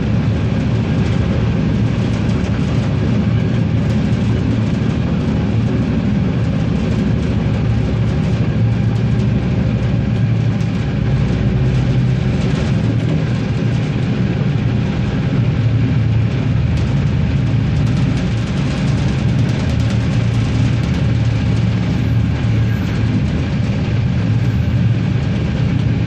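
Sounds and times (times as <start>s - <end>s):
diesel railcar engine hum: 0.0s - 26.0s
wheel and rail noise: 0.0s - 26.0s.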